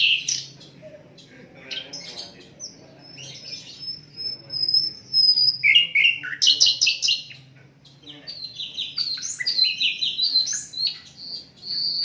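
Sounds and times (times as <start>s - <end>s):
bird chattering notes: 0.0s - 12.0s
bird high whistle: 9.2s - 12.0s.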